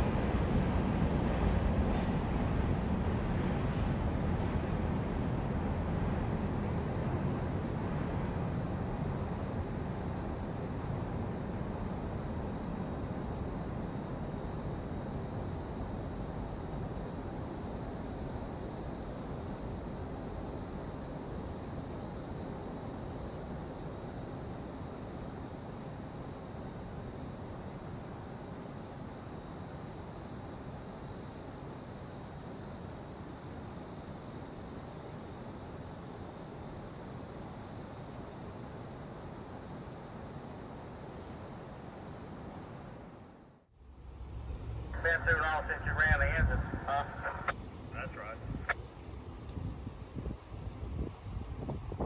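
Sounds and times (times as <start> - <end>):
crickets chirring: 0.0 - 52.0
low background rumble: 44.0 - 48.7.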